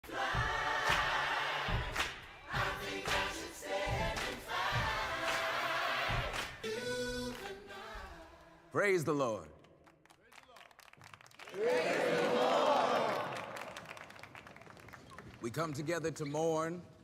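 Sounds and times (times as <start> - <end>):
gospel choir singing: 0.0 - 8.7.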